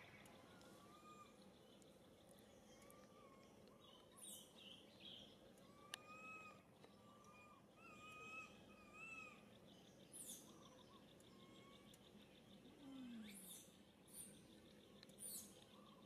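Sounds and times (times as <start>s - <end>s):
bird whistling and chirping: 0.9s - 1.4s.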